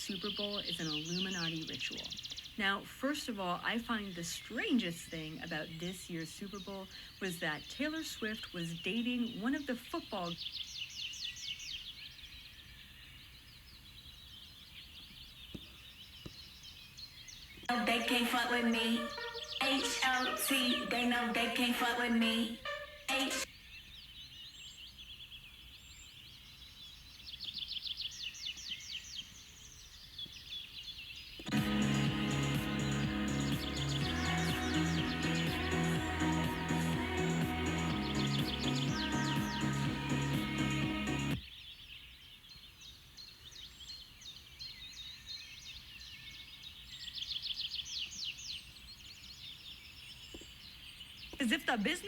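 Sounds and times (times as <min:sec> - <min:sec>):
songbirds chirping and singing: 0:00.0 - 0:52.0
bird trill of falling notes: 0:17.8 - 0:23.5.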